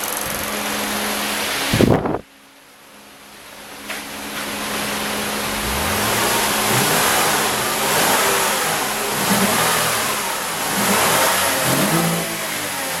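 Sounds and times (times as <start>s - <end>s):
car engine revving: 4.6s - 13.0s.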